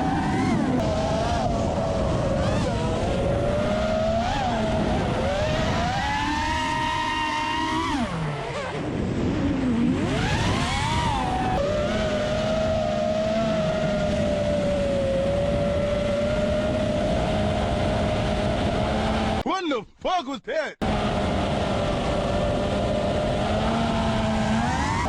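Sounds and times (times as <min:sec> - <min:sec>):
quadcopter motors whining: 0:00.0 - 0:19.4.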